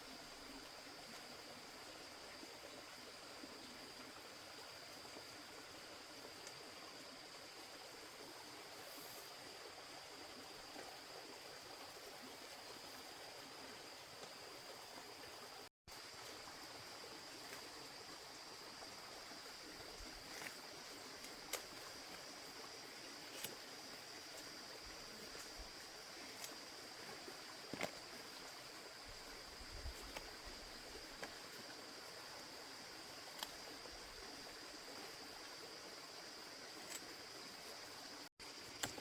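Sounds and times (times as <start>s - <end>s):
faint ticks: 6.4s - 6.6s, 33.2s - 33.7s.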